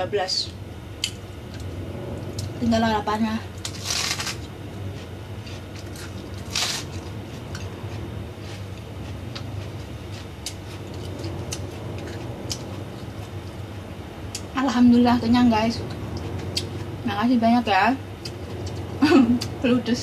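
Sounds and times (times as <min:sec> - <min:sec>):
steady low hum: 0:00.0 - 0:20.0
crunchy bite: 0:03.6 - 0:04.5, 0:05.5 - 0:07.7
person chewing: 0:03.6 - 0:13.6.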